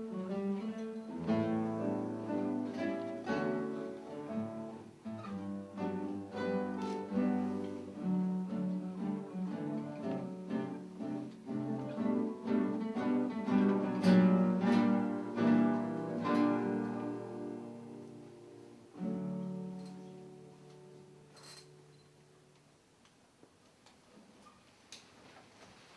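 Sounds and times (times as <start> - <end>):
acoustic guitar ensemble playing: 0.0 - 22.6.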